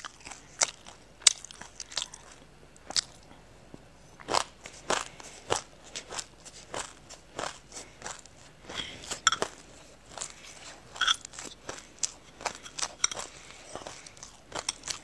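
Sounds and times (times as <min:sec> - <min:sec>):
crunching and chewing seeds: 0:00.0 - 0:15.0
spoon clinking in glass cup: 0:09.3 - 0:09.5, 0:11.0 - 0:11.3.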